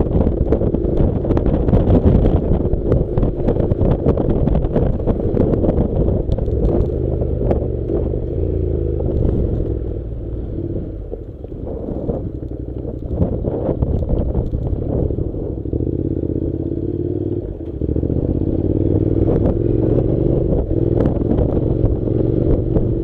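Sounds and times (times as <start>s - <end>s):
clicks and knocks under tyres: 0.0s - 8.3s, 9.0s - 10.0s, 10.9s - 15.2s
motorcycle engine running: 0.0s - 23.0s.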